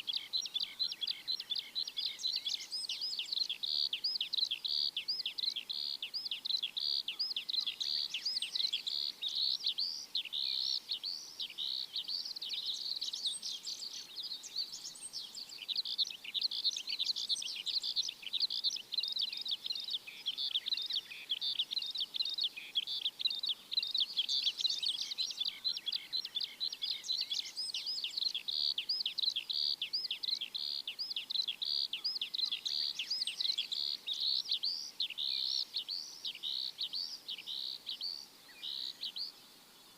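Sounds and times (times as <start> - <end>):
flock of small birds chirping: 0.0 - 39.9.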